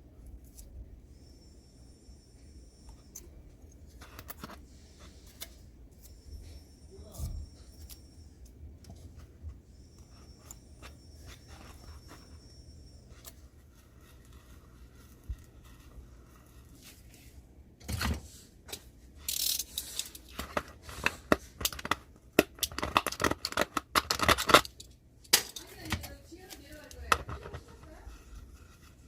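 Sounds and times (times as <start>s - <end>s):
scraping and rustling: 25.6s - 29.0s.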